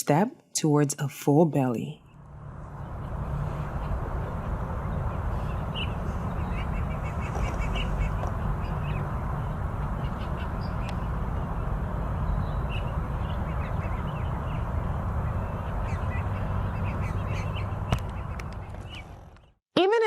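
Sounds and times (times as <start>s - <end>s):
low rushing background noise: 2.0s - 19.4s.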